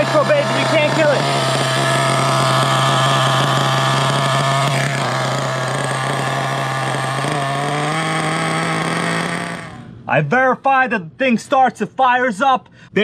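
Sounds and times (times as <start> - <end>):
small nitro engine idling: 0.0 - 10.0.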